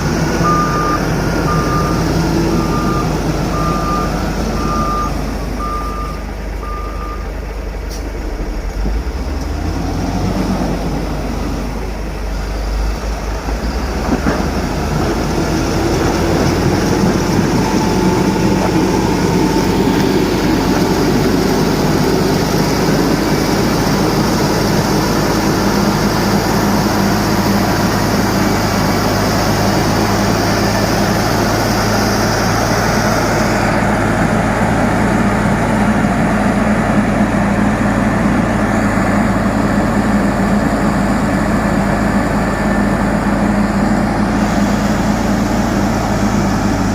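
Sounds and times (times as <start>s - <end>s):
heavy diesel engine running: 0.0s - 46.9s
reversing beep: 0.3s - 8.7s.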